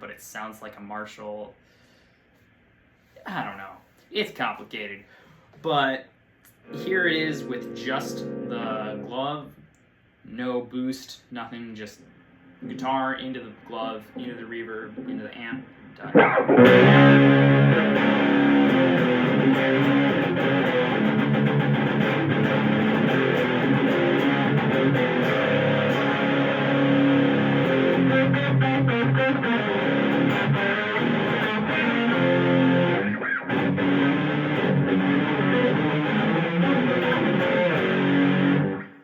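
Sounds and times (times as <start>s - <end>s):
distorted electric guitar: 6.6s - 9.2s, 14.9s - 39.0s.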